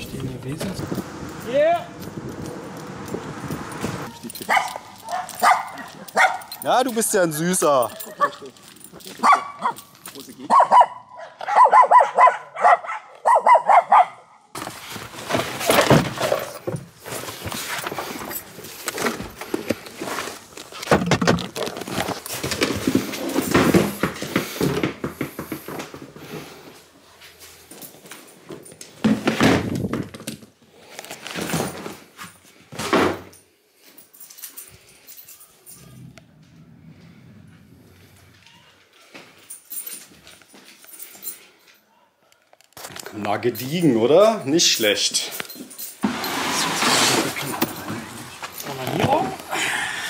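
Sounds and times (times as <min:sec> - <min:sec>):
rustling and knocking: 0:14.6 - 0:26.6.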